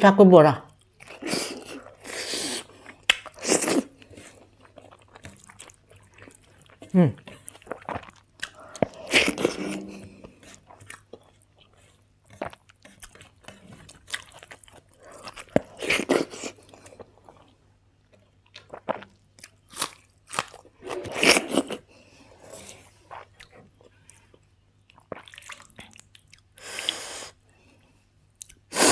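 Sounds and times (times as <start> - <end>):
person chewing with crunches: 0.8 - 27.3.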